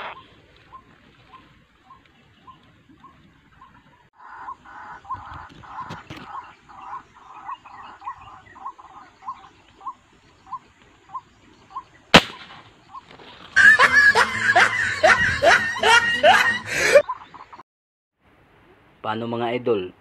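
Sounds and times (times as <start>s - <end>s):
sharp gunshot: 12.1s - 12.7s
laughing sound effect: 13.6s - 17.2s.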